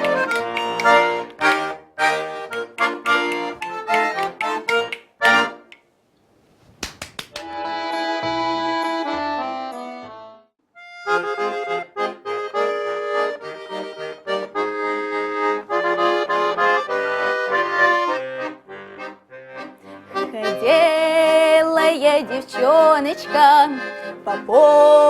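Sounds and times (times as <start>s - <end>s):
button accordion playing: 0.0s - 5.8s, 7.4s - 25.0s.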